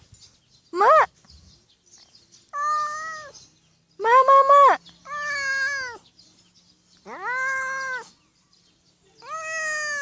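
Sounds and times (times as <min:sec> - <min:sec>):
cat meowing: 0:02.6 - 0:03.4, 0:05.1 - 0:06.0, 0:07.1 - 0:08.1, 0:09.2 - 0:10.0.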